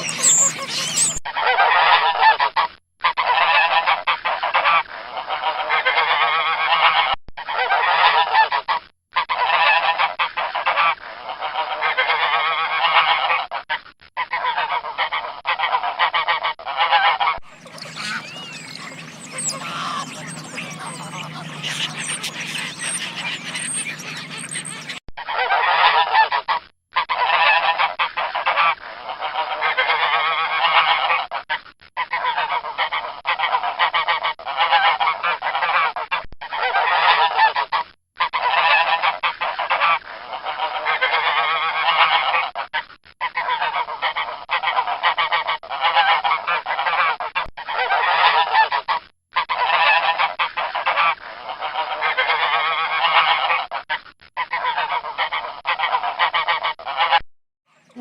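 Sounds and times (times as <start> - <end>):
geese honking: 0.0 - 1.2, 17.5 - 25.0.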